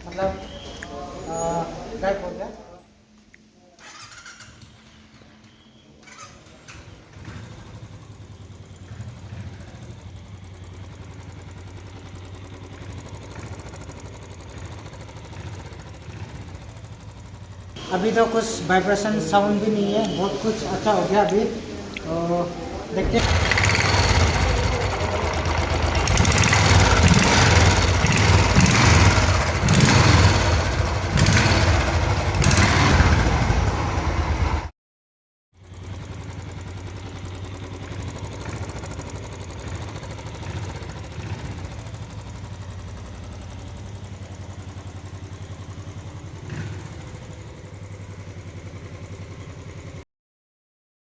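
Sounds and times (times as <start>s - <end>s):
motorcycle engine running: 6.1s - 34.7s, 35.6s - 50.0s.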